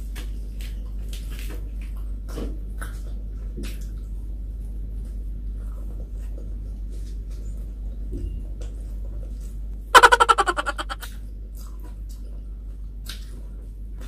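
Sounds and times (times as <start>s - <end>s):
chewing and mouth smacks: 13.0s - 13.4s.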